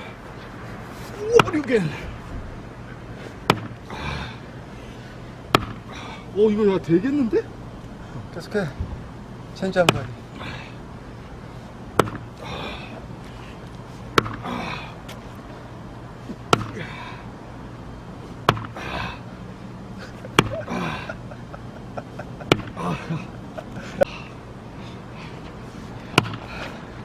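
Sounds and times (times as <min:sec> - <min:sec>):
person breathing heavily: 0:01.8 - 0:06.4, 0:10.2 - 0:27.0
axe striking a log: 0:03.5 - 0:03.8, 0:05.5 - 0:05.8, 0:12.0 - 0:12.2, 0:14.2 - 0:14.5, 0:16.5 - 0:16.8, 0:18.5 - 0:18.8, 0:20.4 - 0:20.6, 0:22.5 - 0:22.8, 0:26.2 - 0:26.4.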